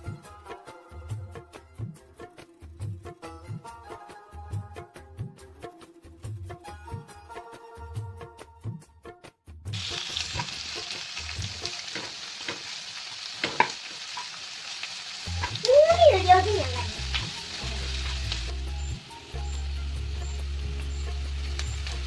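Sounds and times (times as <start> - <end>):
onions sizzling in a frying pan: 9.7 - 22.0
low music bass: 16.2 - 22.0.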